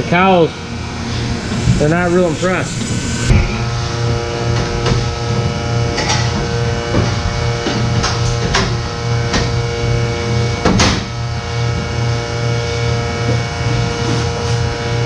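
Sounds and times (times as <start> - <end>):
low pulsing throb: 0.0 - 6.0.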